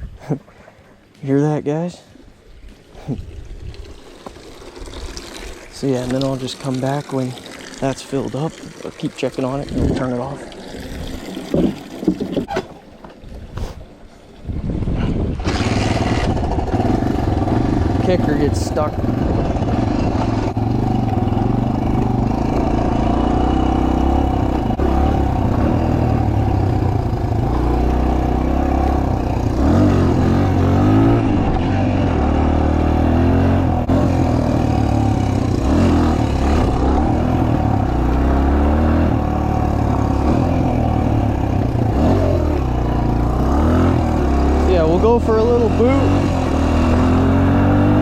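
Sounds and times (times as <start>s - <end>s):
motorbike engine with throttle blips: 14.9s - 48.0s.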